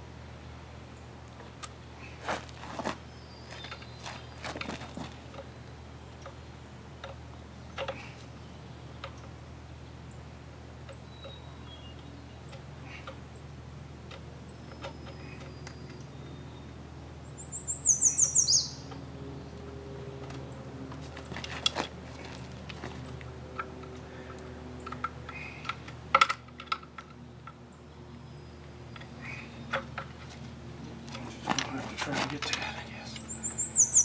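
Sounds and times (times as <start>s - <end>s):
songbird burst of notes: 14.5s - 19.6s, 32.6s - 34.0s.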